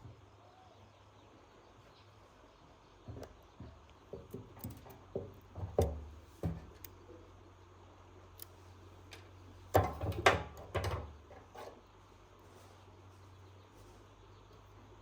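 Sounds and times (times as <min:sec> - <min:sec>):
irregular knocks and clicks: 0:03.0 - 0:07.0.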